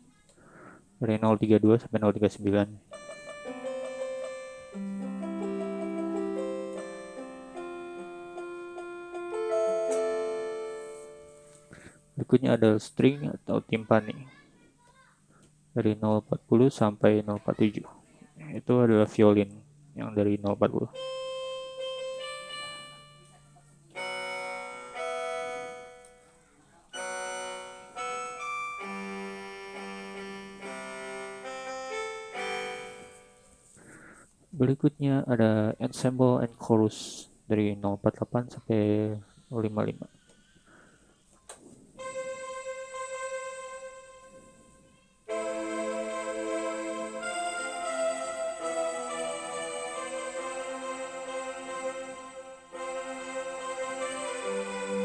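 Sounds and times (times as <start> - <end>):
electronic keyboard string chords: 2.9 - 12.0, 20.9 - 33.6, 42.0 - 55.0
electronic keyboard bass notes: 45.3 - 52.1.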